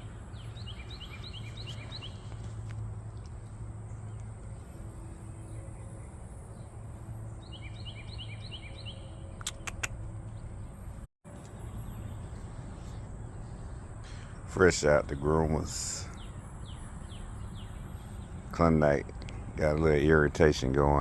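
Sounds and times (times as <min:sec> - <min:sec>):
bird chirping: 0:00.0 - 0:20.2
steady low hum: 0:00.0 - 0:20.5
sharp clicks: 0:09.4 - 0:10.0.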